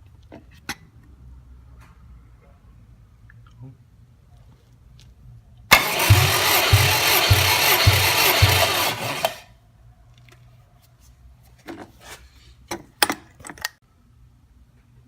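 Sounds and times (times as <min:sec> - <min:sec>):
engine cranking: 0:05.7 - 0:09.5.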